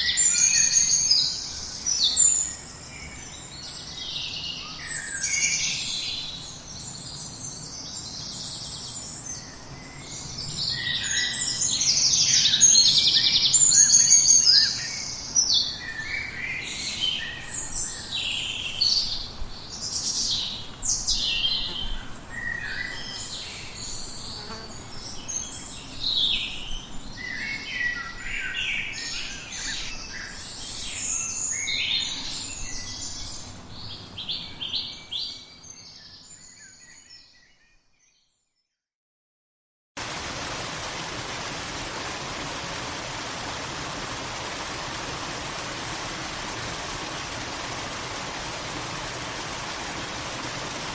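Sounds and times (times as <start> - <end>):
songbirds singing and chirping: 0.0 - 38.4.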